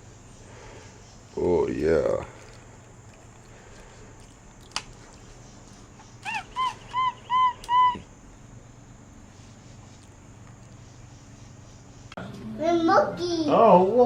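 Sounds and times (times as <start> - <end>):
monkey squeaky calls: 6.2 - 8.1.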